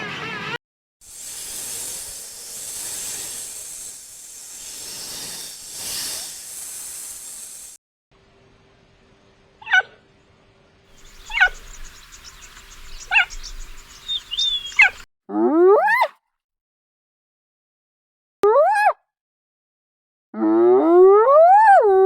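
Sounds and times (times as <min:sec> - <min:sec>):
brief hiss: 0:01.0 - 0:07.8
rising animal call: 0:11.0 - 0:15.0.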